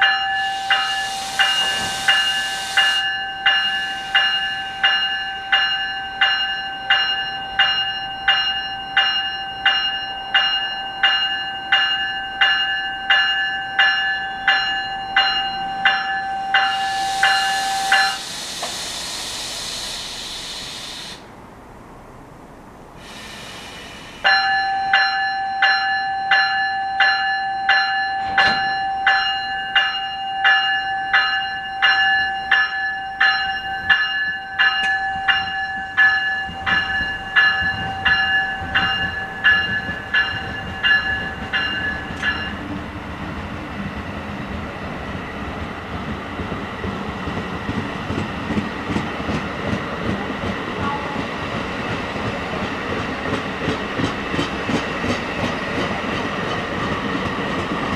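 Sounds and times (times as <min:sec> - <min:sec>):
train warning bell ringing: 0:00.0 - 0:18.8, 0:24.0 - 0:43.0
train wheels clattering over joints: 0:45.9 - 0:57.9.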